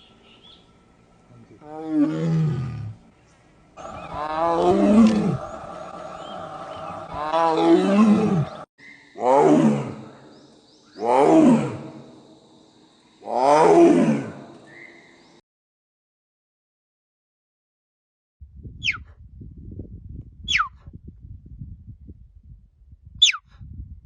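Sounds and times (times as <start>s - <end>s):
big cat roaring: 1.5s - 3.0s, 3.8s - 10.3s, 11.0s - 12.2s, 13.2s - 14.6s.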